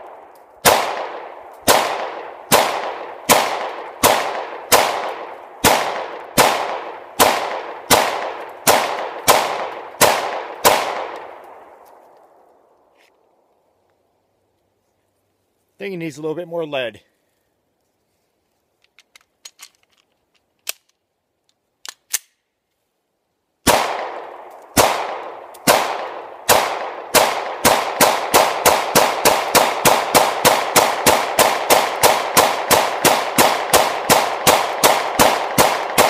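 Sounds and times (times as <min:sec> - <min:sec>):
pistol shots with echo: 0:00.0 - 0:11.7, 0:23.6 - 0:36.0.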